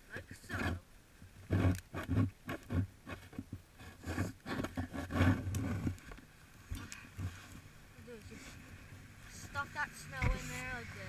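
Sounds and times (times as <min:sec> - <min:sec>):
snow crunching and scraping: 0:06.6 - 0:11.0.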